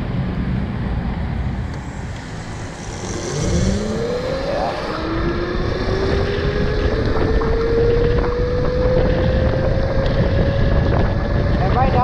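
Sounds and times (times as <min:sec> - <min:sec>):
wind on microphone: 0:01.6 - 0:12.0
electric motor whining: 0:01.8 - 0:11.2.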